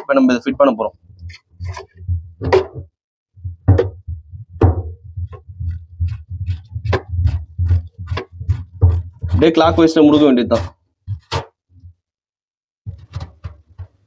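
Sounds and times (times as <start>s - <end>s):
sharp plastic clicks and knocks: 12.9s - 14.0s.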